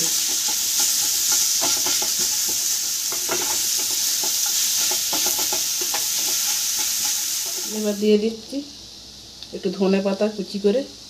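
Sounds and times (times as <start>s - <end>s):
wooden spatula scraping a pan: 0.0s - 7.9s
potatoes sizzling in a pan: 0.0s - 11.0s.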